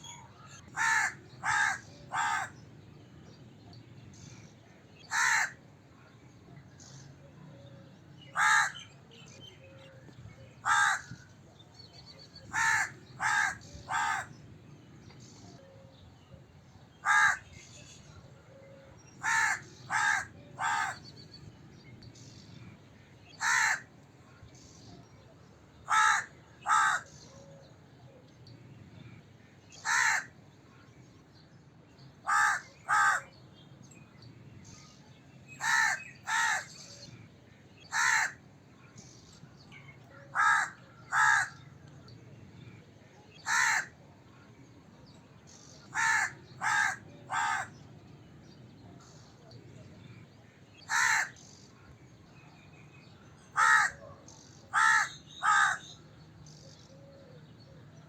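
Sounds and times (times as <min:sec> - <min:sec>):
crow cawing: 0:00.8 - 0:02.6, 0:05.1 - 0:05.6, 0:08.4 - 0:08.9, 0:10.6 - 0:11.2, 0:12.5 - 0:14.3, 0:17.0 - 0:17.5, 0:19.2 - 0:21.0, 0:23.4 - 0:23.9, 0:25.9 - 0:27.1, 0:29.8 - 0:30.3, 0:32.3 - 0:33.3, 0:35.6 - 0:36.7, 0:37.9 - 0:38.4, 0:40.3 - 0:41.6, 0:43.4 - 0:44.0, 0:45.9 - 0:47.7, 0:50.9 - 0:51.4, 0:53.6 - 0:54.0, 0:54.7 - 0:55.9.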